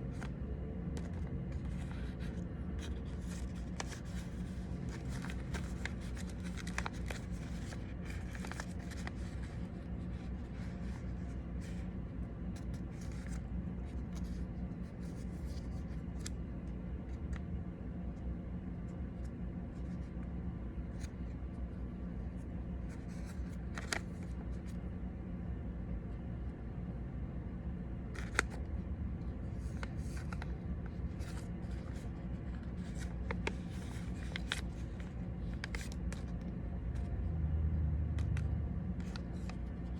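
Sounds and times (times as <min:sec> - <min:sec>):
paper rustling and creasing: 0:00.0 - 0:17.2, 0:22.4 - 0:24.8, 0:28.1 - 0:28.6, 0:29.2 - 0:37.2, 0:38.2 - 0:39.9
low room hum: 0:00.0 - 0:39.9.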